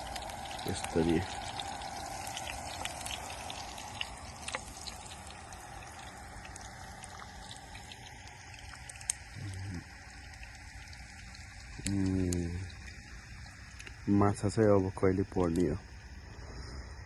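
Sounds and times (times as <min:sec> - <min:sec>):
sausages sizzling in a frying pan: 0:00.0 - 0:16.3.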